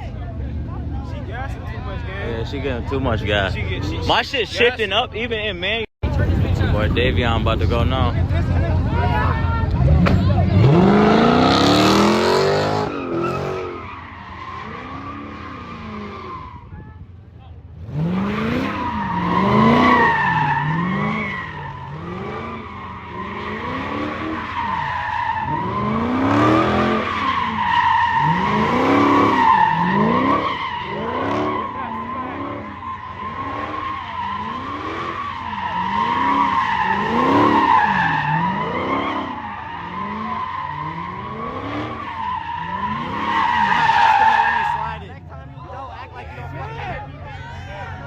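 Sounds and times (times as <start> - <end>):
car engine revving: 6.1 - 16.7, 17.7 - 45.5
tyres squealing: 18.6 - 45.0.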